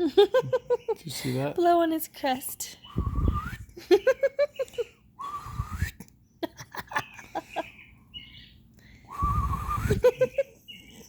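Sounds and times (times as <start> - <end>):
breath puffs with whistle tone: 2.8 - 3.8, 5.2 - 6.1, 8.9 - 10.1.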